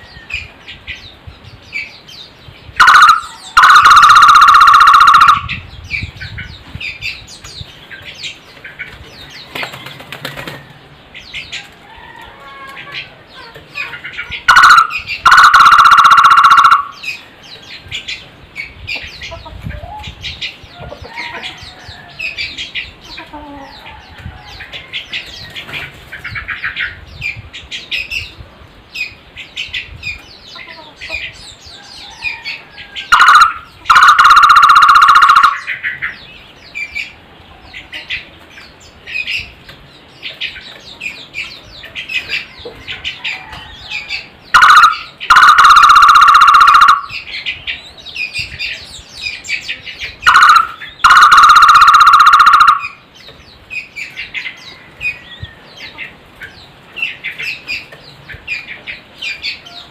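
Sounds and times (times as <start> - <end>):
small birds chirping: 0.0 - 59.9
barbet call with loud trill: 2.8 - 5.6, 14.4 - 17.2, 33.1 - 35.8, 44.5 - 47.2, 50.2 - 53.0.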